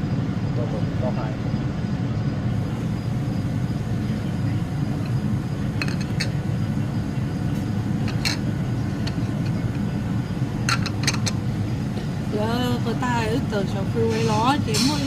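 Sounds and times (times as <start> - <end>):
vehicle rumbling: 0.0 - 15.0
light clinks and rattles: 5.8 - 6.4, 8.0 - 9.8, 10.6 - 11.4.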